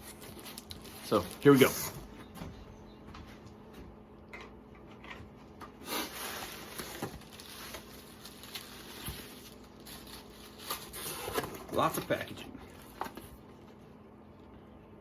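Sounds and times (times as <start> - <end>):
packaging rustling: 0.0 - 1.8, 5.8 - 13.4.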